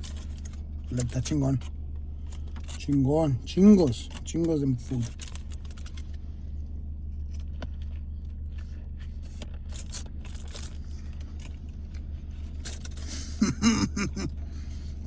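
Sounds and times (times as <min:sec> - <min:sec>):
low hum inside car: 0:00.0 - 0:15.0.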